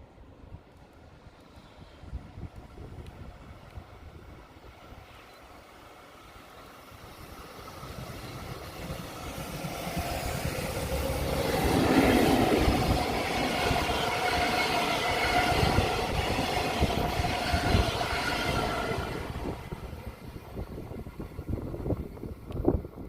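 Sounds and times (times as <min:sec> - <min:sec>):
freight train passing: 0:00.0 - 0:23.0.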